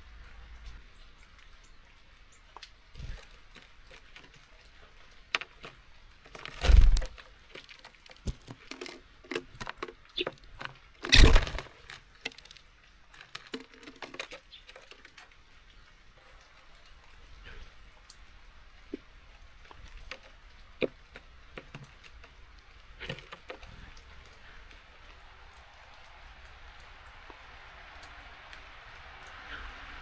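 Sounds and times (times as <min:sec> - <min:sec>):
loud thumps: 0:11.1 - 0:11.7.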